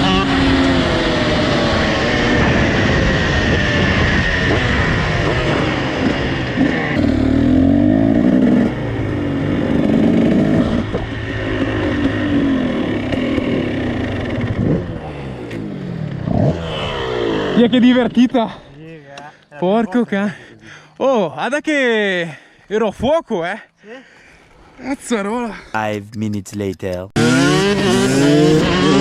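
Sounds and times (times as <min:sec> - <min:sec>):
two-stroke engines revving: 0:00.0 - 0:18.8, 0:27.1 - 0:29.0.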